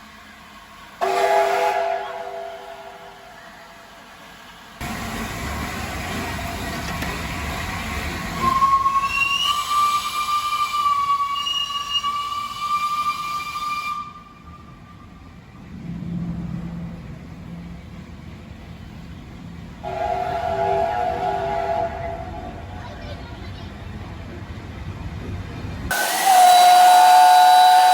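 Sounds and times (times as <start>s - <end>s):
train rumbling: 0.0s - 27.9s
steam locomotive whistle: 1.0s - 3.2s, 8.4s - 15.1s, 19.8s - 22.7s, 25.9s - 27.9s.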